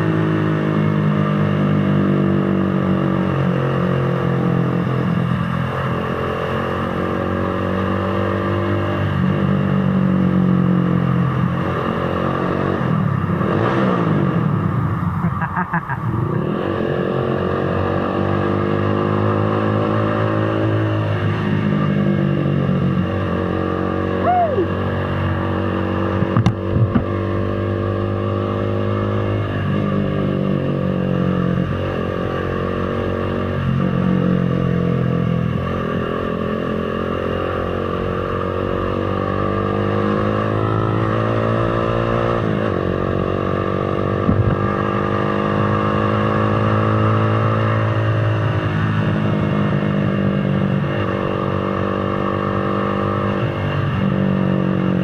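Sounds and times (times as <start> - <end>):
motorcycle engine running: 18.6 - 55.0.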